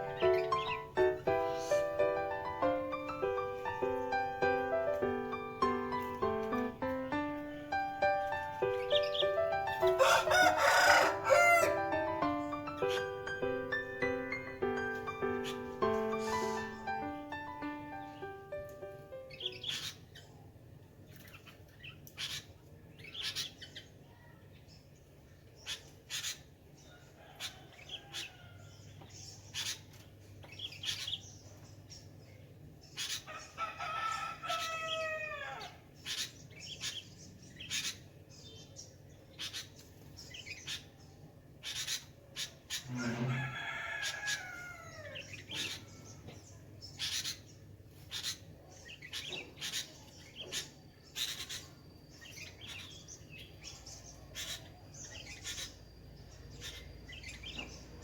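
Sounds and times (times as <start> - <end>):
birds chirping: 0.0 - 58.0
rooster crowing: 9.8 - 12.0, 26.9 - 28.9, 33.3 - 35.8, 42.9 - 45.3.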